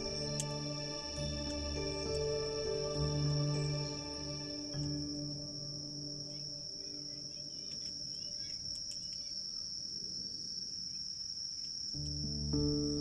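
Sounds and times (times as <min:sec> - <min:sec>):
soft ambient music: 0:00.0 - 0:08.6, 0:12.0 - 0:13.0
campfire crackling: 0:00.0 - 0:09.6
crickets trilling: 0:00.0 - 0:13.0.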